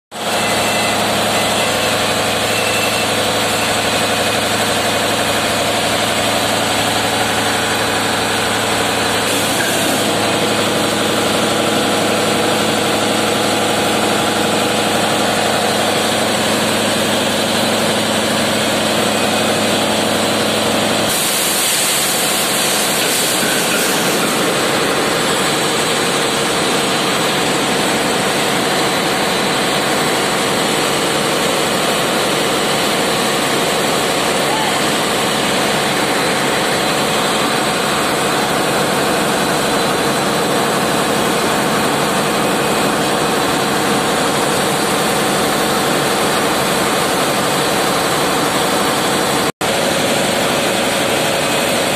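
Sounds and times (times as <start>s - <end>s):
hiss: 21.1s - 24.3s.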